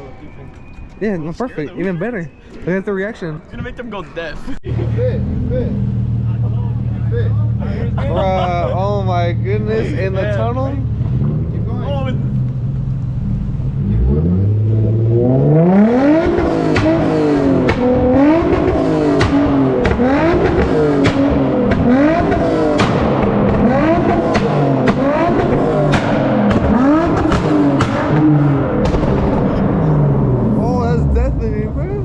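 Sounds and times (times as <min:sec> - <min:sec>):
car engine revving: 0:04.6 - 0:32.0
exhaust pops and crackles: 0:16.1 - 0:30.3.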